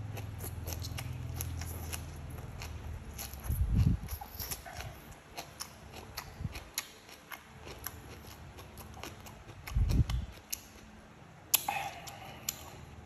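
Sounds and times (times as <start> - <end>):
wet crunching chews: 0.0 - 10.9
lip smacks: 11.5 - 12.9.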